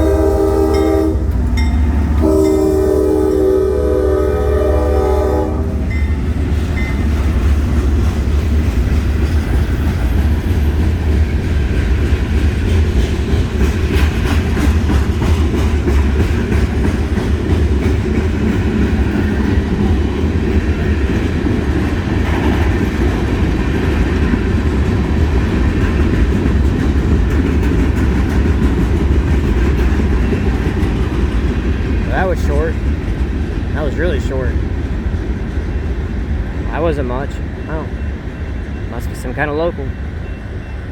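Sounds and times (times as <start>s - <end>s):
locomotive horn chord: 0.0s - 6.0s
freight train rumbling past: 0.0s - 40.9s
wheels clicking over rail joints: 6.5s - 32.1s.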